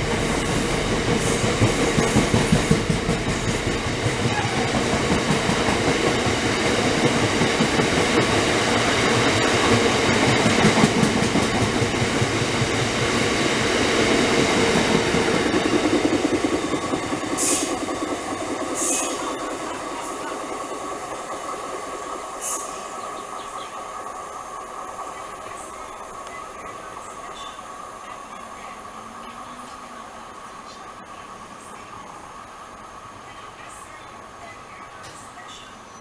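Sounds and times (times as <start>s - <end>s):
train wheels clattering over rails: 0.0s - 24.0s
high hiss: 0.0s - 35.8s.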